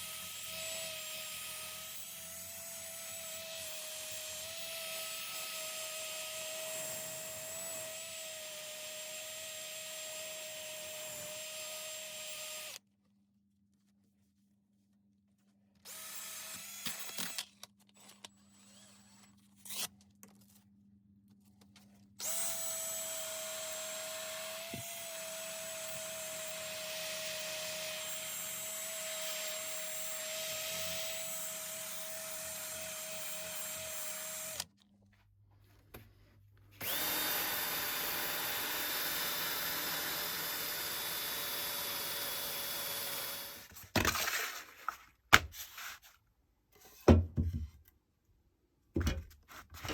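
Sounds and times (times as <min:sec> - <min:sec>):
electric power tool whining: 0:22.2 - 0:34.7, 0:36.8 - 0:43.7.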